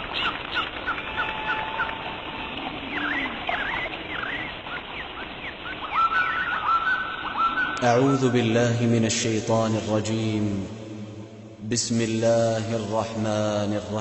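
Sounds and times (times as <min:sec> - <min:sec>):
birds chirping: 0:00.0 - 0:09.8.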